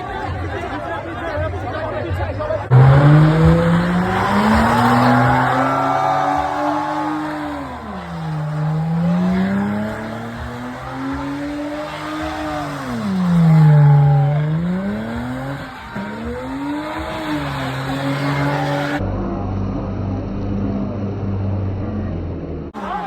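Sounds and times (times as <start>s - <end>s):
car engine revving: 2.7s - 19.0s
tyres squealing: 2.7s - 19.0s
steady engine drone: 2.7s - 22.0s.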